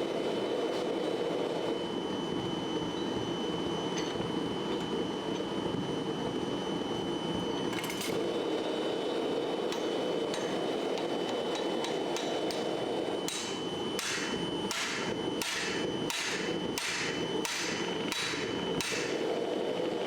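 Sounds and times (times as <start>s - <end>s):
hammer ringing on steel anvil: 2.9s - 3.2s, 9.7s - 19.3s.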